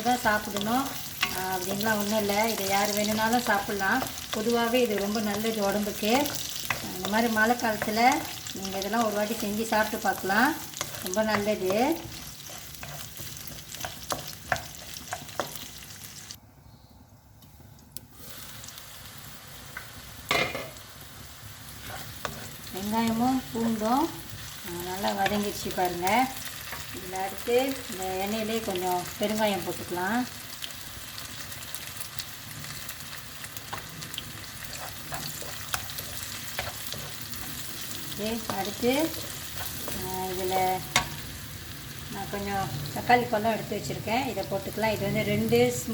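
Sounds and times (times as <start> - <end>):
onions sizzling in oil: 0.0 - 16.4, 18.1 - 45.9
spatula scraping pan: 0.2 - 15.9, 21.8 - 25.8, 33.7 - 41.2.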